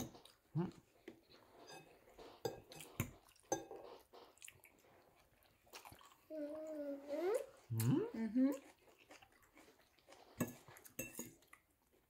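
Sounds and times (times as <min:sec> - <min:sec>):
cutlery clinking on plates: 0:01.6 - 0:03.9, 0:10.4 - 0:11.5.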